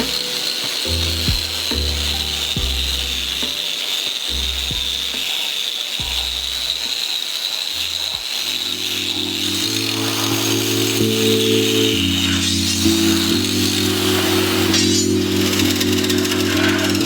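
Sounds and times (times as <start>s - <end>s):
lofi hip-hop music: 0.0s - 7.0s, 8.1s - 17.0s
steady high hiss: 0.0s - 17.0s.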